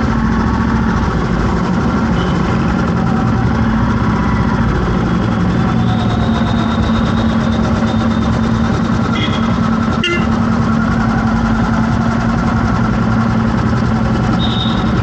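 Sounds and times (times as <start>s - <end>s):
vehicle engine running: 0.0s - 15.0s
short horn beeps: 9.1s - 10.4s, 14.4s - 15.0s.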